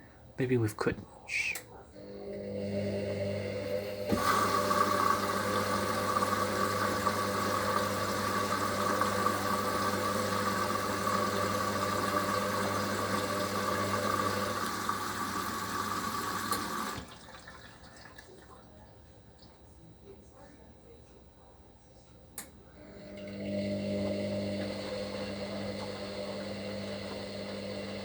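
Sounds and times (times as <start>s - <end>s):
washing machine motor hum with whine: 1.8s - 28.0s
faint water sound: 4.1s - 20.1s.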